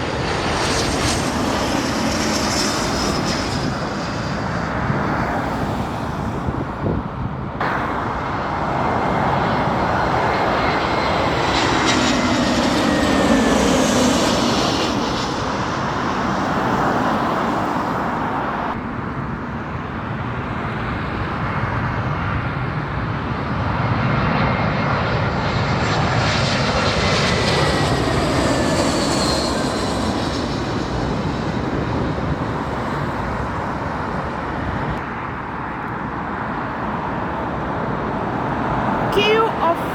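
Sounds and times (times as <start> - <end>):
jet airliner passing overhead: 0.0 - 39.9.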